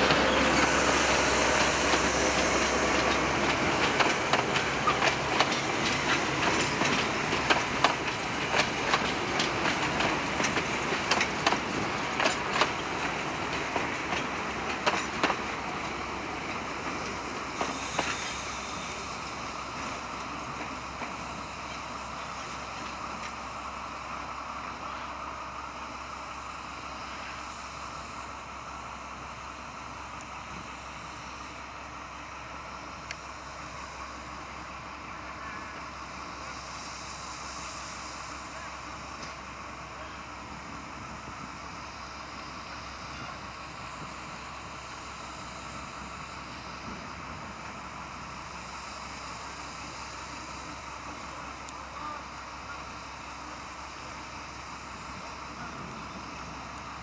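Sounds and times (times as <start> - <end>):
train wheels clickety-clack: 0.0 - 23.4
low diesel engine hum: 0.0 - 57.0.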